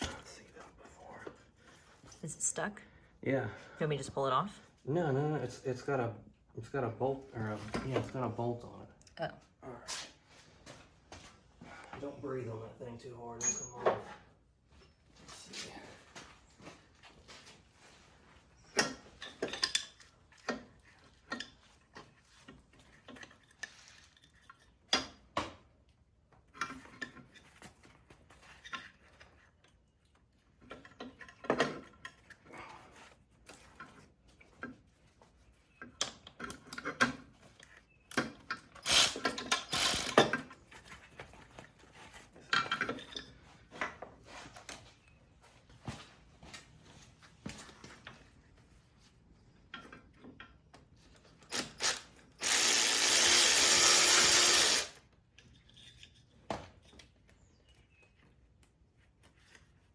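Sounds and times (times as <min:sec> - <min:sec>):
metal tools clanking: 0:13.4 - 0:14.1
ratchet wrench clicking: 0:38.8 - 0:40.3, 0:51.5 - 0:55.0.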